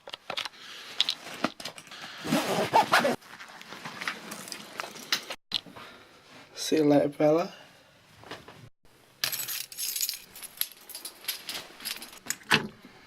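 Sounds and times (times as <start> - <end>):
clicks and handling noise: 0.0 - 1.9.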